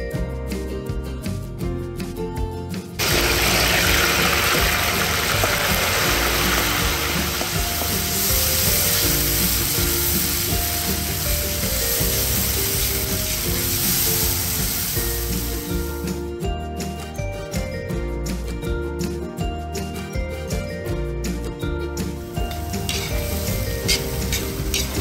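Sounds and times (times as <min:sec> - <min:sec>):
background music: 0:00.0 - 0:25.0
vegetables sizzling in hot oil: 0:03.0 - 0:16.2, 0:22.2 - 0:25.0.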